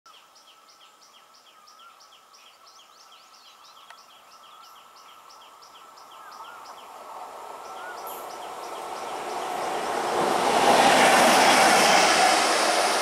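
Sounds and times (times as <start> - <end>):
bird chirping: 0.1 - 10.0
electric train approaching: 6.5 - 13.0.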